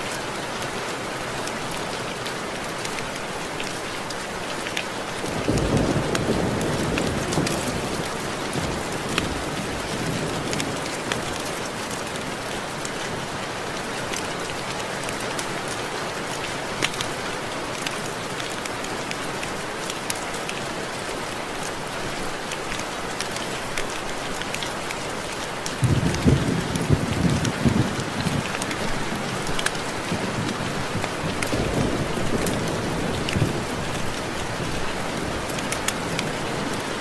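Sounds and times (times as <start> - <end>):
raindrops hitting window glass: 25.6 - 37.0.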